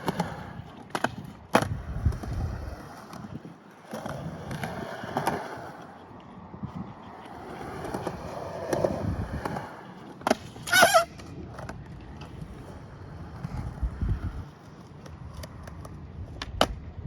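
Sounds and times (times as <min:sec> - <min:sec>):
skateboard wheels rolling on concrete: 0:00.0 - 0:17.0
skateboard sharp clack: 0:06.9 - 0:16.9.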